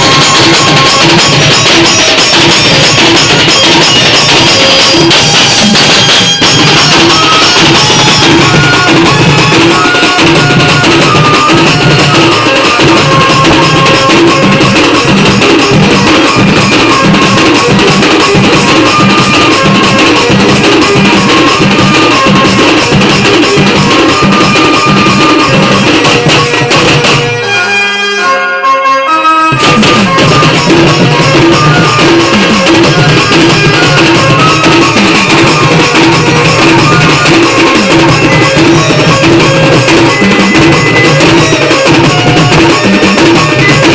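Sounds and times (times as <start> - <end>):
drums and percussion beat: 0.0 - 27.7, 29.5 - 43.9
loud band music: 0.0 - 43.9.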